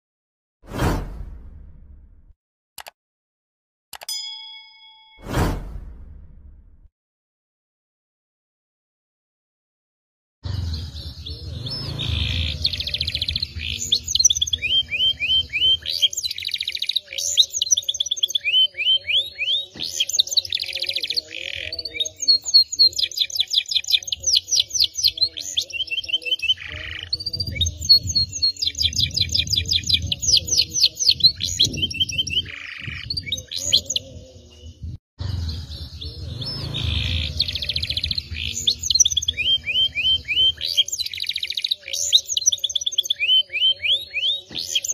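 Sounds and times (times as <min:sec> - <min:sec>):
canary singing trills: 0:10.5 - 0:44.9.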